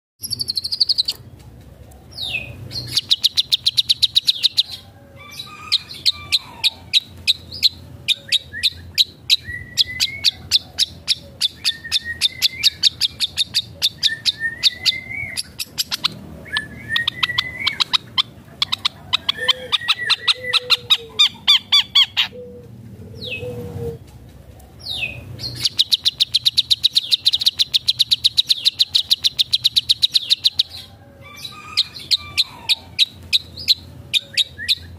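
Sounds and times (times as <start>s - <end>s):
bird singing rapid sharp notes: 0.2s - 1.3s, 2.1s - 4.8s, 5.9s - 22.2s, 24.8s - 30.9s.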